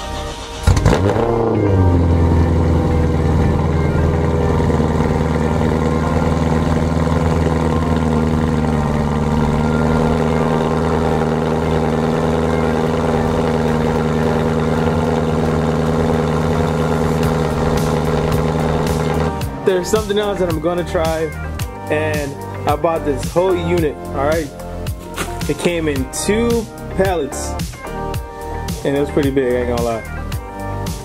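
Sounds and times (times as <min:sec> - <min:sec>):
car engine fast idle: 0:00.0 - 0:21.2.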